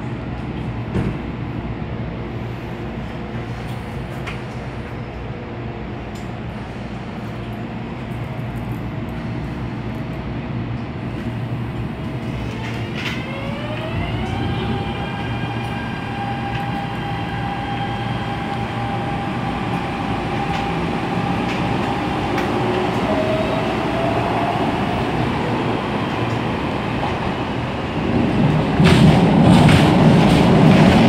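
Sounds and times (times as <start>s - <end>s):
train electrical hum: 0.0s - 31.0s
rising whine: 13.2s - 26.8s.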